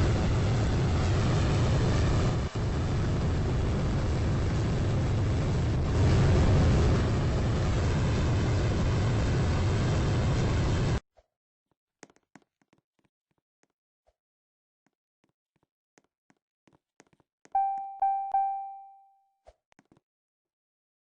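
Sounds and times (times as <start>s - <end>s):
loud rumbling noise: 0.0s - 11.0s.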